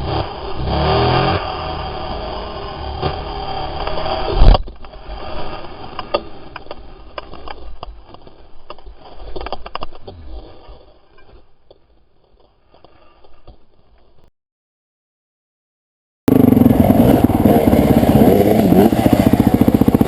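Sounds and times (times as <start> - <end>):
dirt bike engine running hard: 0.0 - 6.5, 16.3 - 20.0
bike and rider tumbling: 0.0 - 14.3, 16.3 - 20.0.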